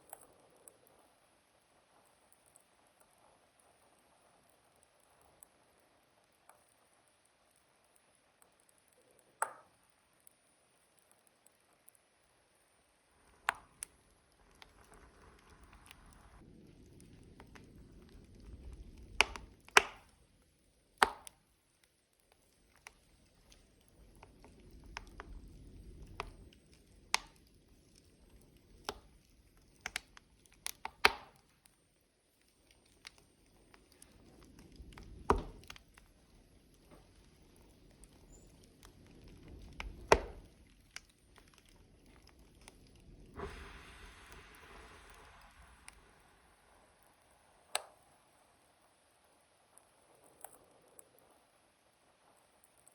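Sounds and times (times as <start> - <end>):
logs crackling in a wood stove: 0.0 - 52.9
low rush of flame: 13.0 - 20.4, 22.5 - 31.2, 32.8 - 52.3.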